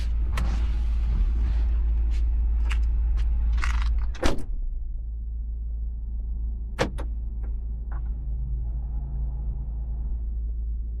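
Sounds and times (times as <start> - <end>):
car cabin drone: 0.0 - 11.0.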